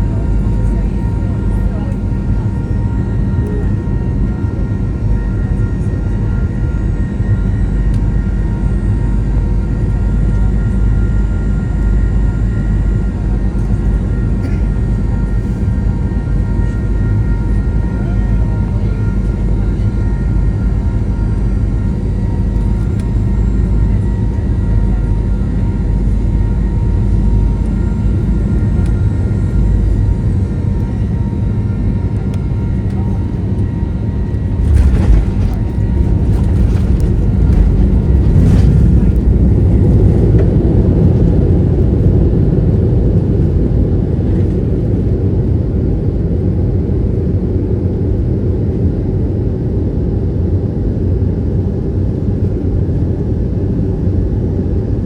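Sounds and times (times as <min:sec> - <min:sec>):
airplane engine hum: 0:00.0 - 0:55.0
jet rumbling on runway: 0:14.0 - 0:45.9
whining tones: 0:32.7 - 0:42.3.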